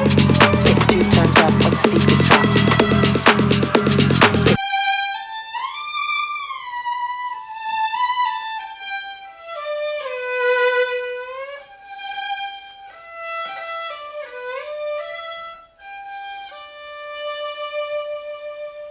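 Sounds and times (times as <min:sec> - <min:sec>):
solo violin slow melody: 0:04.6 - 0:18.9.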